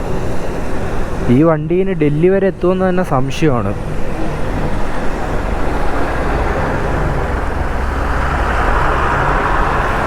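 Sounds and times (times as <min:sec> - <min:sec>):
road noise with wind: 0:00.0 - 0:10.0
motorcycle engine: 0:03.8 - 0:10.0.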